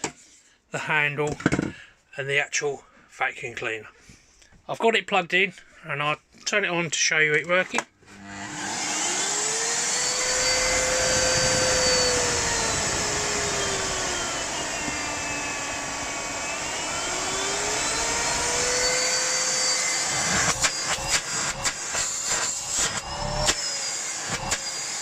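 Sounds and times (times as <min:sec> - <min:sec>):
vacuum cleaner motor running: 0:08.1 - 0:25.0.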